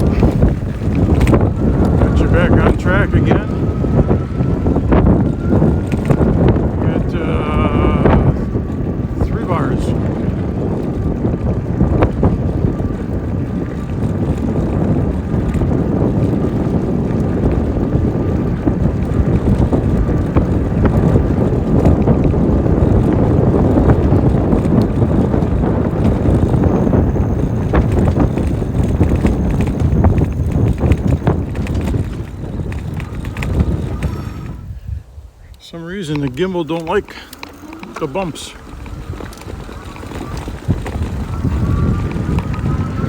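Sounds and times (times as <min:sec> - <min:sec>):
bike knocks and rattles: 0:00.0 - 0:06.7, 0:10.3 - 0:34.5, 0:36.1 - 0:43.0
tyres rumbling on bumpy road: 0:00.0 - 0:43.0
wind buffeting microphone: 0:00.0 - 0:43.0.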